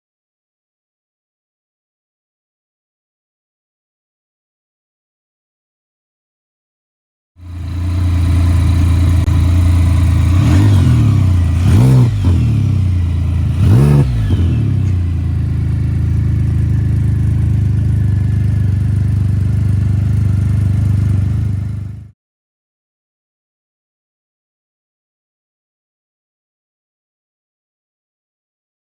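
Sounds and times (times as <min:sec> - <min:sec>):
engine throttle blips: 0:07.4 - 0:22.1
motorcycle engine idling: 0:07.4 - 0:22.1.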